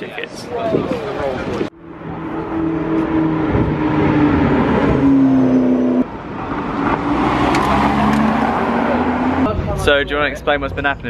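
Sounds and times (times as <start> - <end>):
sports car passing: 1.4 - 11.0
sports car accelerating: 1.6 - 10.2.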